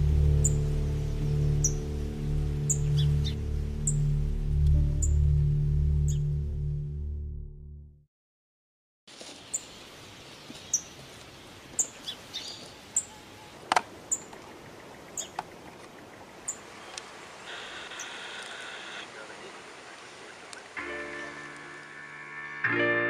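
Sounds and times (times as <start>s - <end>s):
bird chirping: 0.0s - 4.1s, 9.5s - 22.4s.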